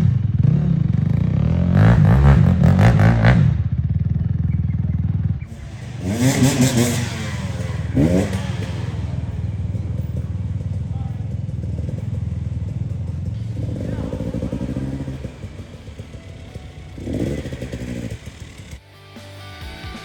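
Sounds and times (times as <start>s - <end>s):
off-road engine revving: 0.0s - 18.8s.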